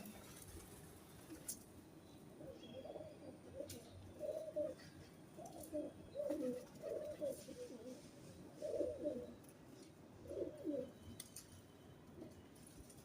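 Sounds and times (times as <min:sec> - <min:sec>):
pigeons cooing: 0:02.4 - 0:09.4, 0:10.2 - 0:11.0.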